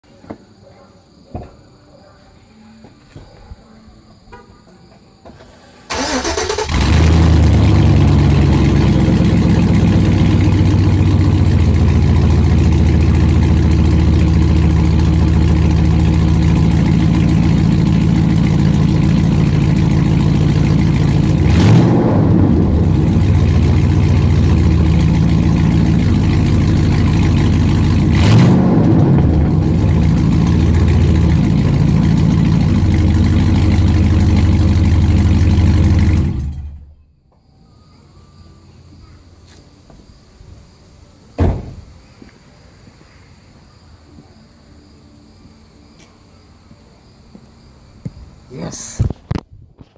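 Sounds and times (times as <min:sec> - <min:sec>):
car engine idling loud and raw: 0:05.8 - 0:37.0
engine throttle blips: 0:05.8 - 0:37.1.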